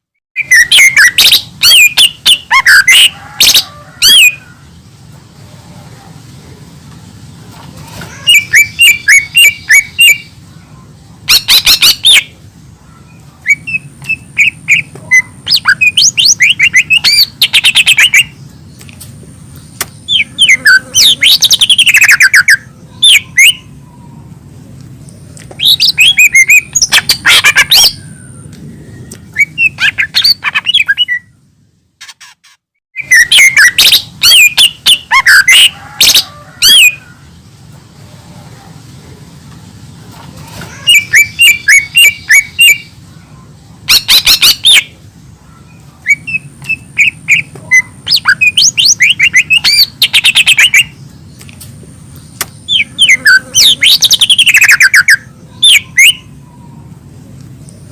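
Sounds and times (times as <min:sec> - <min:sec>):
bird singing chirps and whistles: 0:00.4 - 0:04.4, 0:08.2 - 0:10.4, 0:11.3 - 0:12.4, 0:13.1 - 0:18.4, 0:19.8 - 0:23.7, 0:25.5 - 0:31.4, 0:33.0 - 0:37.0, 0:40.8 - 0:43.0, 0:43.9 - 0:45.0, 0:45.7 - 0:51.0, 0:52.3 - 0:56.3
low background hum: 0:00.4 - 0:32.3, 0:33.0 - 0:57.9.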